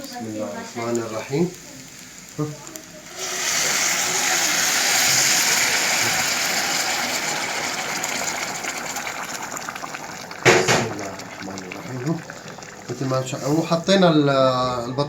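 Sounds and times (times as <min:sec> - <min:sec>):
broth sizzling in hot pot: 0:00.0 - 0:15.0
rice boiling: 0:00.0 - 0:15.0
short knock: 0:10.5 - 0:10.9.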